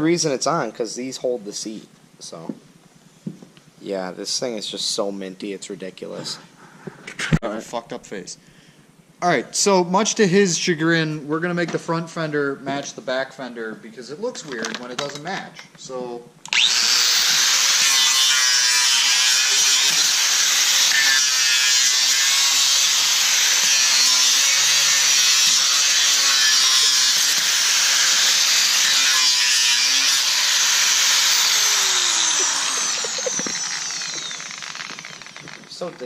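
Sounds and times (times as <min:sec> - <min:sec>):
rotary tool grinding plastic: 0:25.8 - 0:36.0.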